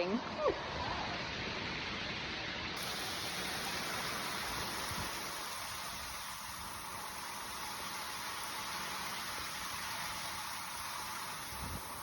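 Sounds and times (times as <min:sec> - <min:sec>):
heavy rain falling: 0:02.8 - 0:12.0.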